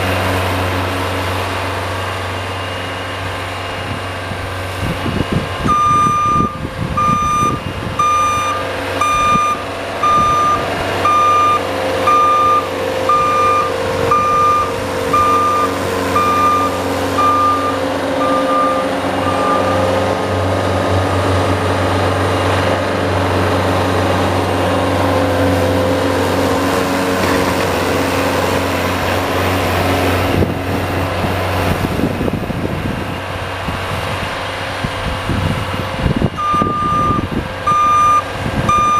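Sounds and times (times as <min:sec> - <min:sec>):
engine running: 0:00.0 - 0:38.9
vehicle reversing alarm beeping: 0:05.6 - 0:20.0, 0:36.4 - 0:38.9.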